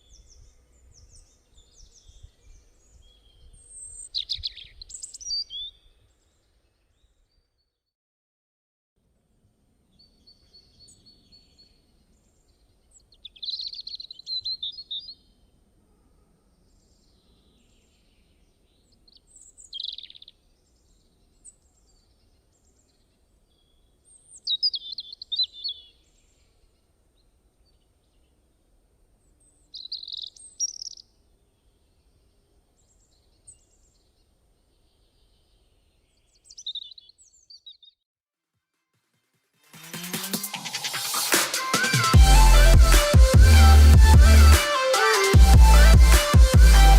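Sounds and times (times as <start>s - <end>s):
faint outdoor background noise: 0.0s - 7.5s, 9.0s - 37.6s
birds chirping: 29.4s - 37.9s.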